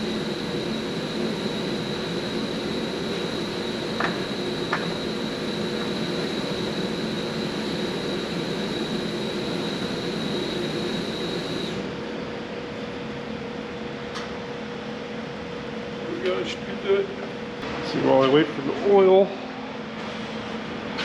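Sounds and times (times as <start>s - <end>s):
machine whine: 0.0s - 13.9s.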